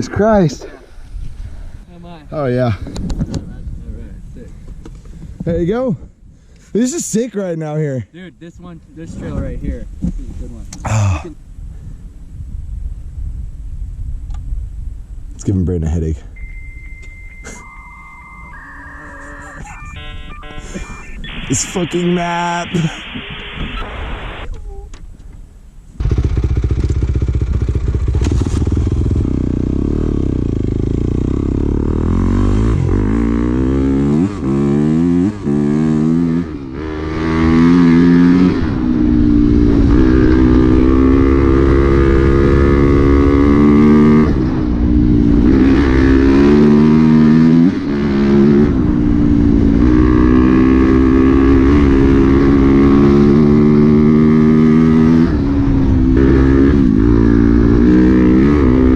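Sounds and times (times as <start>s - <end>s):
dirt bike engine revving: 26.0s - 44.6s, 45.3s - 48.8s, 49.8s - 58.9s.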